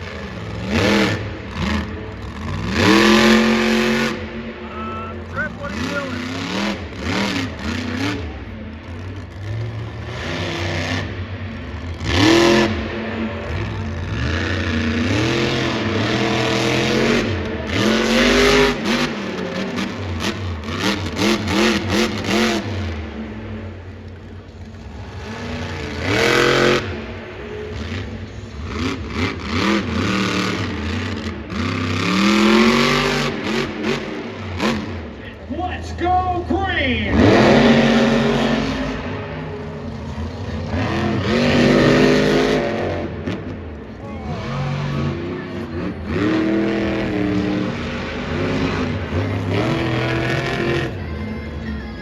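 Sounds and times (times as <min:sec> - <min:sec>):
idling engines rumble: 0:00.0 - 0:52.0
monster truck engines revving: 0:00.0 - 0:52.0.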